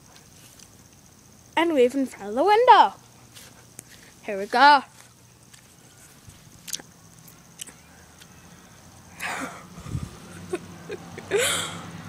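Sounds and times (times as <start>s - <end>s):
person wheezing exhalations: 9.2s - 10.1s, 11.3s - 11.9s.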